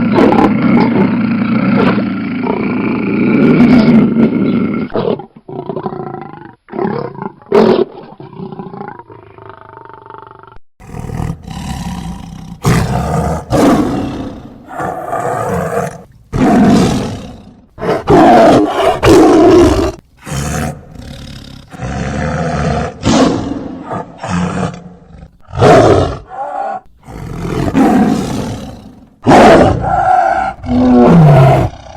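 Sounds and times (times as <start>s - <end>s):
large animal roaring: 8.2s - 31.9s.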